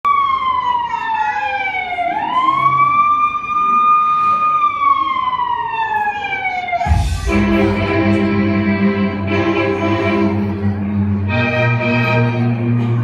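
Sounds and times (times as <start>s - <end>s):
siren wailing: 0.1s - 8.2s.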